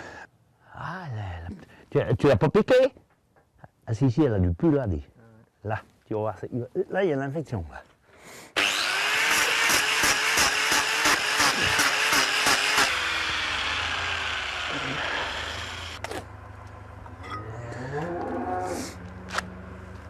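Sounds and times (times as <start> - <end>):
angle grinder grinding hoof: 8.6 - 16.3.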